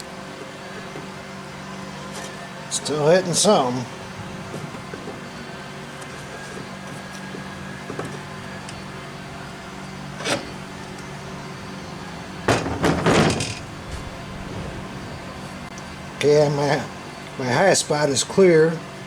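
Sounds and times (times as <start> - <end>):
steady low hum: 0.0 - 18.3
engine parts scraping rattle: 9.8 - 17.3.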